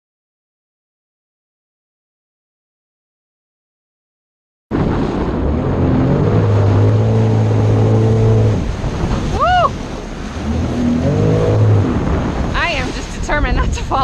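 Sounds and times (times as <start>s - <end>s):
water and wind noise: 4.7s - 14.0s
jet ski engine running: 4.8s - 14.0s.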